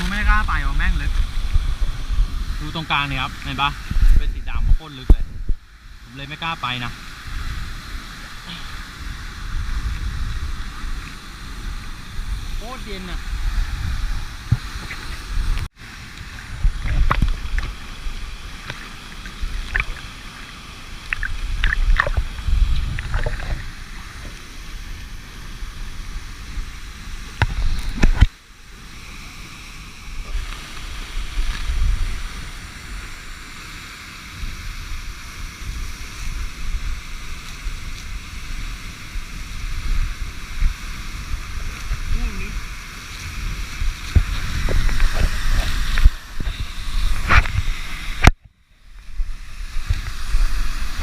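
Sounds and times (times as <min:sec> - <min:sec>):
waterfall rushing: 0:00.0 - 0:05.3, 0:06.0 - 0:48.3
wind rumble on microphone: 0:00.0 - 0:06.2, 0:06.8 - 0:20.2, 0:21.0 - 0:28.3, 0:30.1 - 0:33.6, 0:34.2 - 0:51.0
splashes and knocks: 0:18.6 - 0:20.1, 0:21.1 - 0:24.4.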